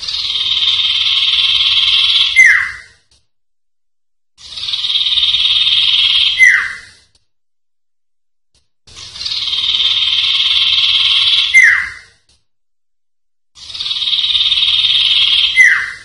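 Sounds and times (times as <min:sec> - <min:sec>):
bird buzzing trill: 0:04.4 - 0:06.9, 0:09.0 - 0:12.0, 0:13.6 - 0:16.0.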